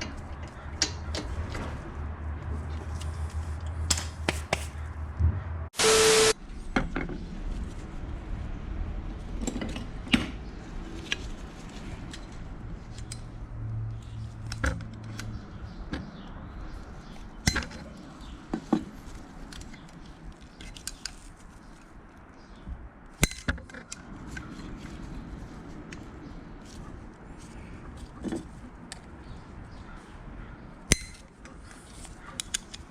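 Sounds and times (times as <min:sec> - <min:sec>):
brief low hum: 0:05.2 - 0:06.4.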